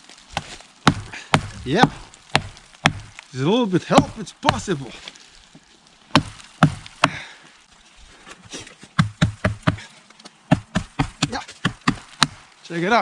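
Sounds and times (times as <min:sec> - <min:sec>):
knife chopping wood: 0:00.3 - 0:03.2, 0:03.9 - 0:04.8, 0:06.1 - 0:07.3, 0:08.2 - 0:09.9, 0:10.5 - 0:12.4.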